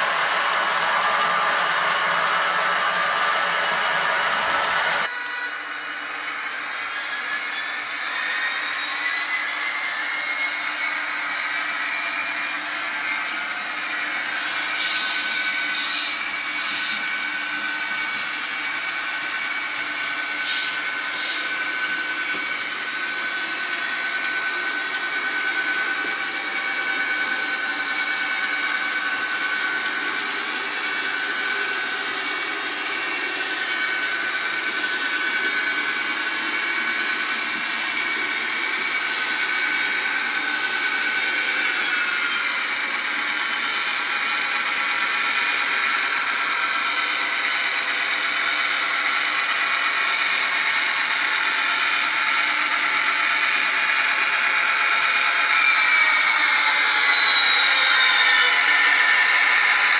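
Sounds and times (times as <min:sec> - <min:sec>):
model train mechanical whine: 0:00.0 - 0:59.9.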